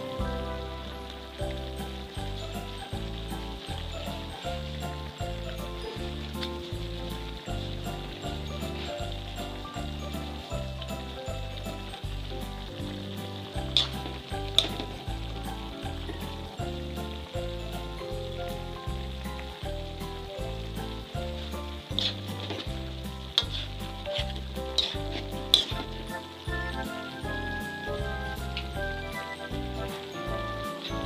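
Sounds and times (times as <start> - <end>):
background music with steady beat: 0.0 - 31.0
food sizzling in a wok: 0.0 - 31.0
utensil scraping pan: 23.4 - 25.9.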